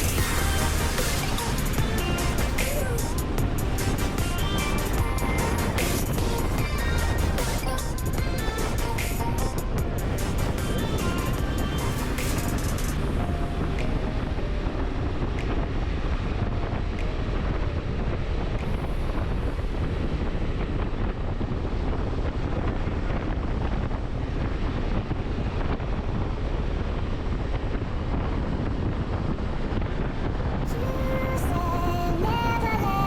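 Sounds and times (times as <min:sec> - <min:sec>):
road noise: 0:00.0 - 0:21.7
wind buffeting microphone: 0:00.0 - 0:33.0.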